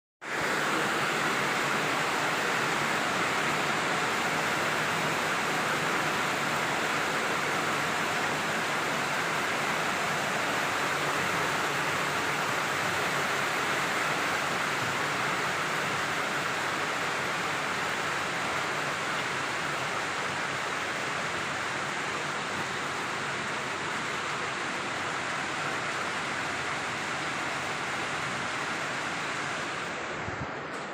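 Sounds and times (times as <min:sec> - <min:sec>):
heavy rain downpour: 0:00.2 - 0:30.9.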